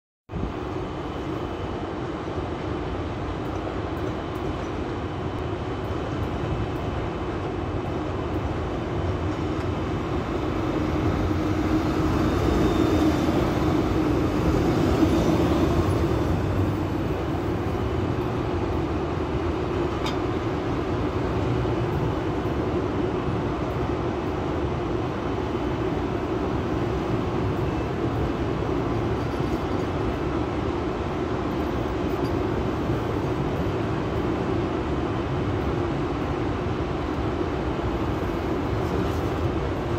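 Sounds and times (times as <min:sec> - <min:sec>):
electric train rumbling on rails: 0:00.3 - 0:39.9.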